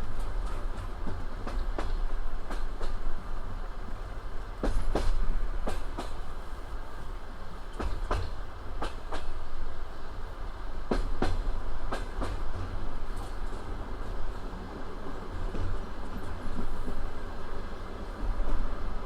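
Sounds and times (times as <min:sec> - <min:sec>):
train wheels knocking on rail joints: 0:00.0 - 0:03.2, 0:04.6 - 0:06.3, 0:07.7 - 0:09.6, 0:10.8 - 0:13.8, 0:15.2 - 0:17.3
train low rumble: 0:00.0 - 0:19.0.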